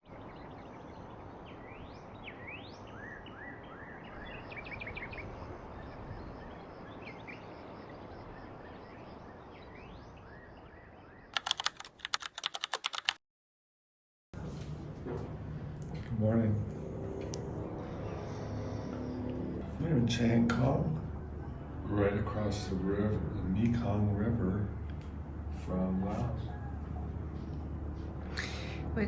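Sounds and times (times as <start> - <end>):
birds chirping: 0.0 - 11.4, 15.6 - 29.0
sharp clicks: 11.4 - 13.2.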